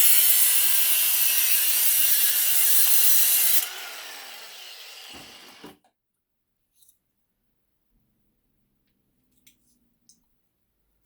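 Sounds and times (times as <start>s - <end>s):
power tool cutting metal: 0.0s - 5.8s
power tool winding down: 0.0s - 5.8s.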